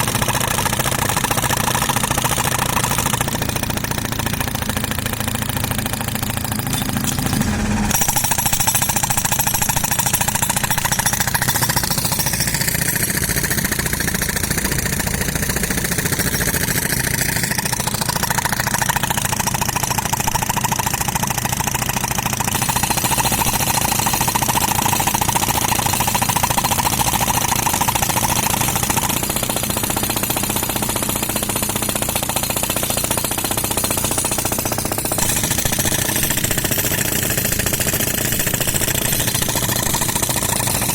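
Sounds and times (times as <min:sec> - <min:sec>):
pneumatic concrete breaker hammering: 0:00.0 - 0:40.9
air compressor engine running: 0:12.7 - 0:40.9.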